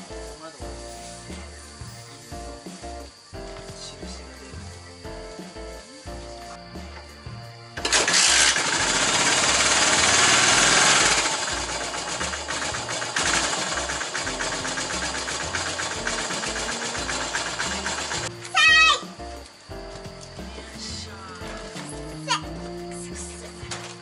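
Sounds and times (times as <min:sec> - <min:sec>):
single-cylinder engine running: 0:07.8 - 0:18.3.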